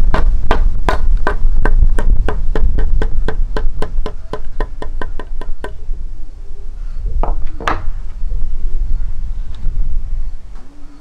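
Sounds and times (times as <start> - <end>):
steady low rumble: 0.0 - 11.0
rapid evenly spaced knocks: 0.1 - 5.8.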